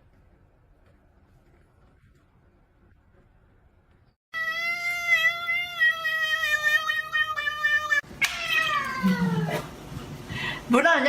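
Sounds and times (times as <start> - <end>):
cat yowling: 4.4 - 9.7.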